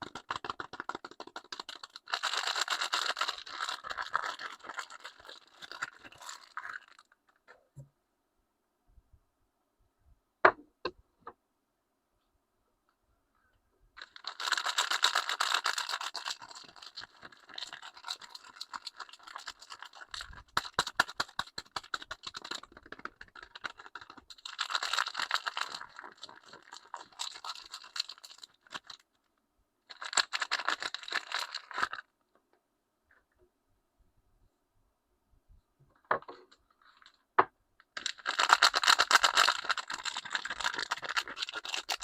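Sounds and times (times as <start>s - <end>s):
wrapper crinkling and tearing: 0.0s - 7.1s, 14.0s - 29.0s, 29.9s - 32.0s, 38.0s - 42.0s.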